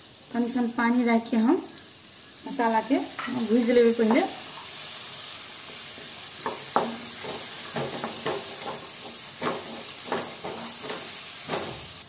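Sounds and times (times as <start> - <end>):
food sizzling in oil: 0.0 - 12.0
wooden spatula scraping pan: 5.7 - 12.0.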